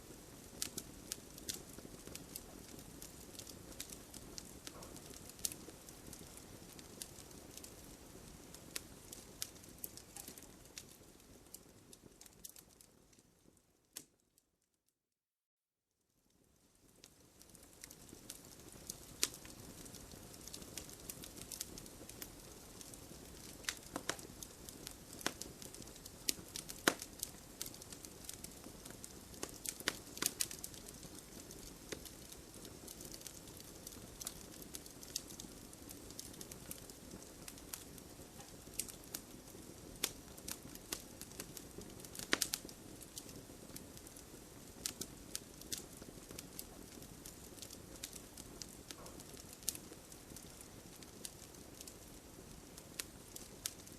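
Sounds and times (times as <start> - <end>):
campfire hissing: 0.0 - 12.6, 16.8 - 53.9
campfire crackling and popping: 0.0 - 14.2, 16.3 - 53.9.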